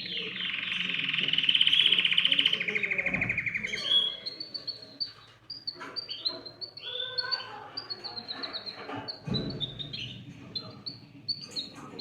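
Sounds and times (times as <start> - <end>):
canary chirping: 0.0 - 12.0.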